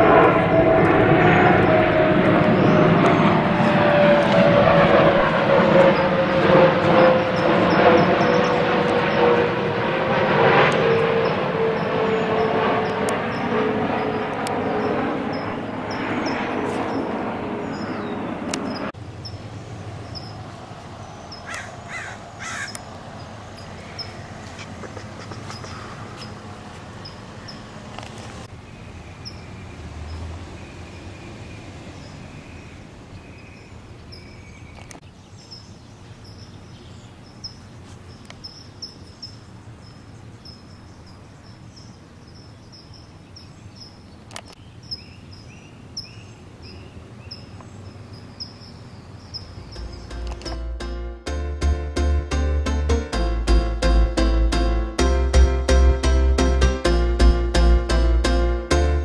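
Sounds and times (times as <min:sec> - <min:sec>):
steady outdoor hum: 0:00.0 - 0:59.0
birds calling: 0:10.8 - 0:50.6
sharp clicks: 0:50.2 - 0:50.6.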